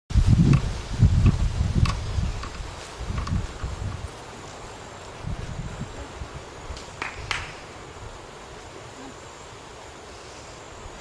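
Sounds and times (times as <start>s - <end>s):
wind buffeting microphone: 0.1s - 8.4s
steady hiss of wind: 0.1s - 11.0s.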